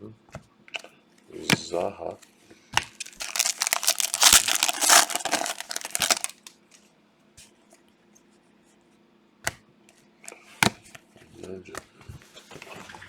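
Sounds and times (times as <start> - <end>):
foil wrapper crinkling and tearing: 2.8 - 6.5.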